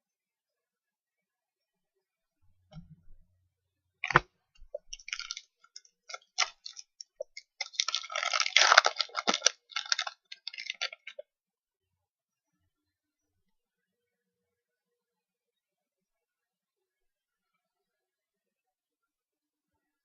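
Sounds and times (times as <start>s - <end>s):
trading cards clicking and rustling: 4.9s - 11.2s.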